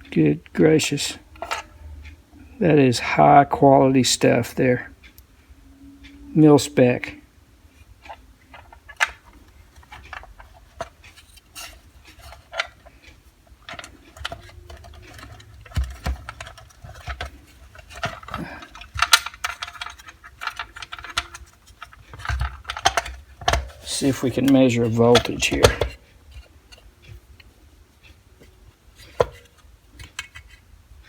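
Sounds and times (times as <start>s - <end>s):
clicks and taps of handled objects: 8.0s - 30.6s.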